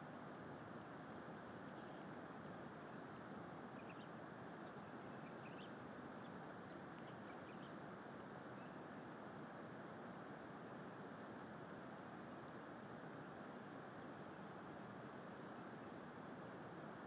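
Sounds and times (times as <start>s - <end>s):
steady hiss: 0.0s - 17.0s
faint bird chirps: 1.6s - 2.2s, 2.8s - 7.8s, 8.5s - 8.9s, 15.3s - 16.0s.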